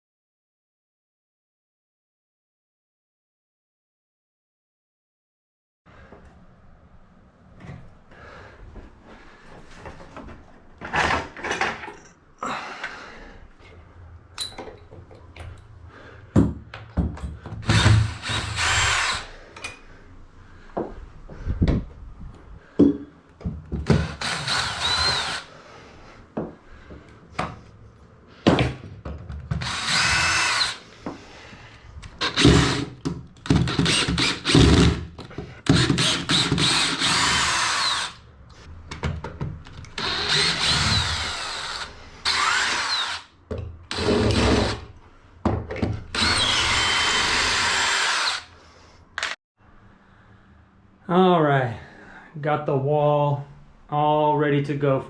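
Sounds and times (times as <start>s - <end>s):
power drill driving screws: 17.6s - 19.4s, 23.9s - 25.5s, 29.5s - 30.9s, 32.2s - 35.0s, 35.6s - 38.2s, 39.9s - 43.3s, 43.9s - 44.9s, 46.1s - 48.6s.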